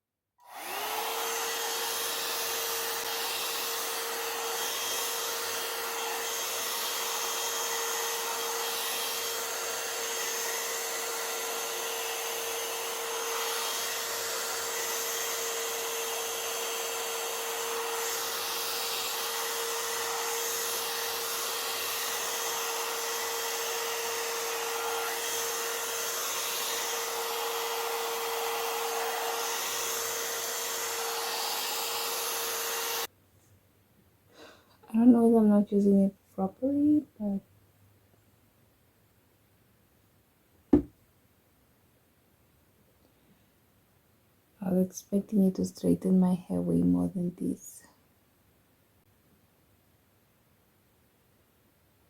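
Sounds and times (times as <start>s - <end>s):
blow dryer running: 0.4s - 33.1s.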